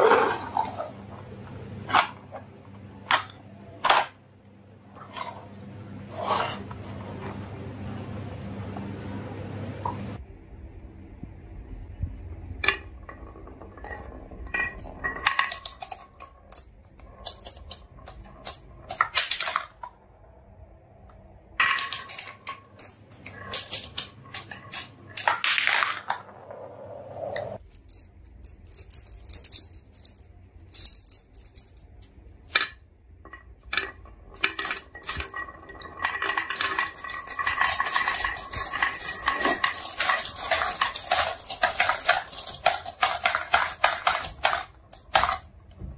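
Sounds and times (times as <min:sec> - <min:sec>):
marbles clattering down wooden track: 0:12.6 - 0:19.9, 0:21.6 - 0:26.5, 0:32.5 - 0:45.6.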